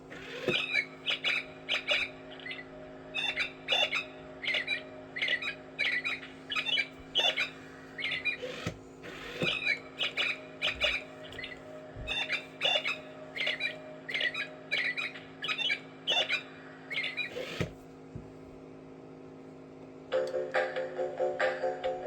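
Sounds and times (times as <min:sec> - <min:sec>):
steady low hum: 0:00.0 - 0:22.0
bird chirping squawky calls: 0:00.4 - 0:08.6, 0:09.3 - 0:17.6.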